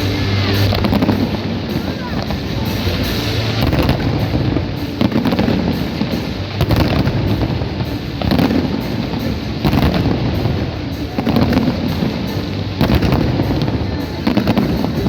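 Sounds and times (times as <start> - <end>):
fireworks bursting: 0.0 - 15.0
music: 0.0 - 15.0.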